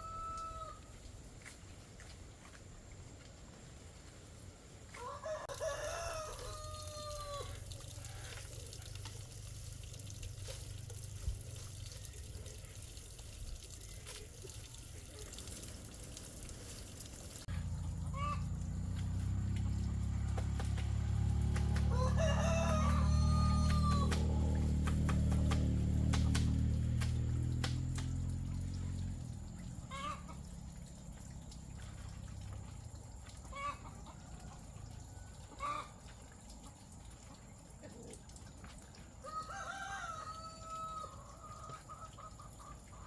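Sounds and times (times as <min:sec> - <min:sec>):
rooster crowing: 0:00.0 - 0:00.8, 0:05.0 - 0:08.2, 0:21.6 - 0:24.8, 0:39.2 - 0:41.7.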